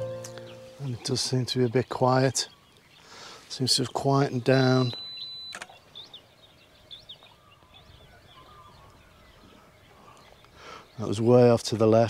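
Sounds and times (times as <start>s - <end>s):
background hiss: 0.0s - 6.6s, 9.9s - 11.6s
faint birds chirping: 0.0s - 12.0s.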